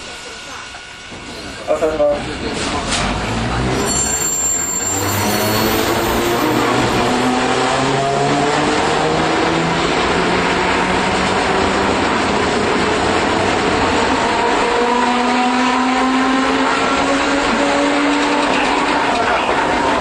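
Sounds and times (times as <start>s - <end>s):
tram motor whine: 0.0s - 15.3s
tram rolling noise: 0.0s - 20.0s.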